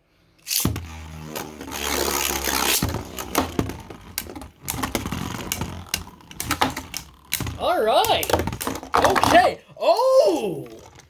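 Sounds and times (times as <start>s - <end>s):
spinning top launcher whirring: 0.4s - 8.9s
spinning tops clashing: 2.0s - 9.0s.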